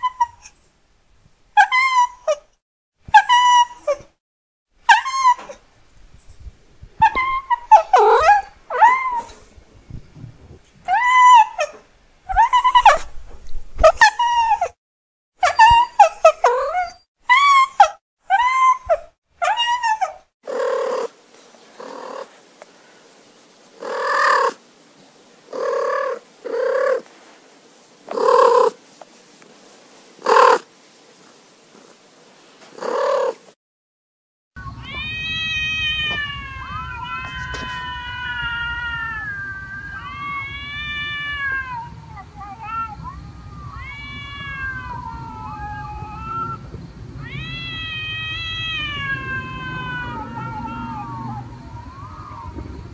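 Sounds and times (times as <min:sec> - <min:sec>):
cat meowing: 0:19.4 - 0:21.1, 0:21.8 - 0:22.3, 0:23.8 - 0:24.6, 0:25.5 - 0:27.0, 0:28.1 - 0:28.8, 0:30.2 - 0:30.6, 0:32.8 - 0:33.4, 0:34.7 - 0:43.0, 0:43.6 - 0:46.6, 0:47.2 - 0:52.5.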